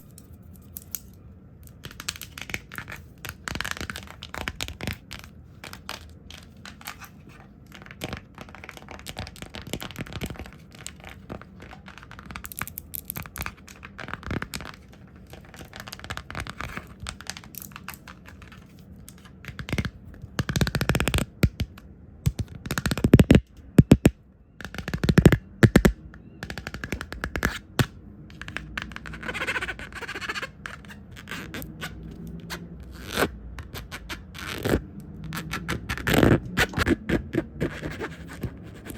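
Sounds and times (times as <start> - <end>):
fast tapping on microphone: 19.6 - 30.5
brushing and hand sounds: 36.4 - 38.9.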